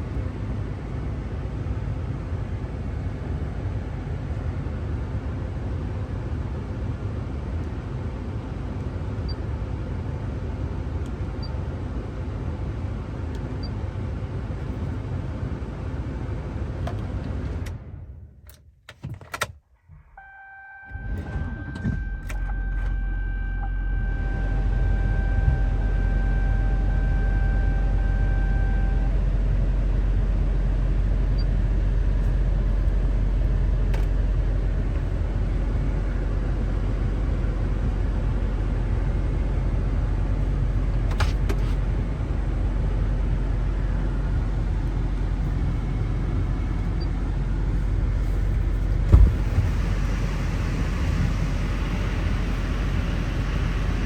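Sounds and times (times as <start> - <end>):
diesel engine starting and idling: 0.0 - 18.6, 19.8 - 54.0
steady high tone: 22.1 - 29.1.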